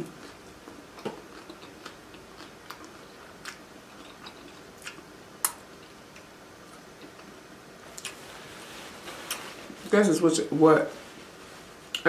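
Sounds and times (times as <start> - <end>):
person chewing: 0.0 - 7.3, 7.9 - 8.2.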